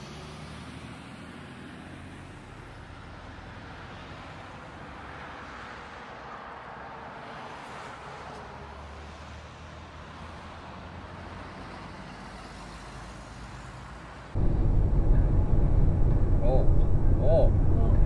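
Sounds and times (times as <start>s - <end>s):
engine hum: 14.3s - 18.0s
wind noise: 14.4s - 18.0s.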